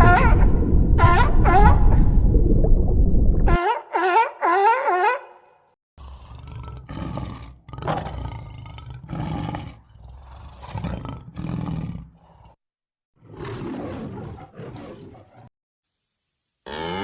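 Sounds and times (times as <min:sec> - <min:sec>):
large animal roaring: 0:06.0 - 0:12.6, 0:13.2 - 0:15.5.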